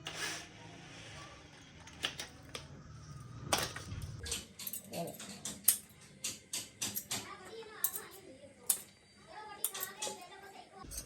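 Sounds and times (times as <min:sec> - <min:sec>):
metal tools clattering: 0:03.5 - 0:08.9, 0:09.6 - 0:11.0.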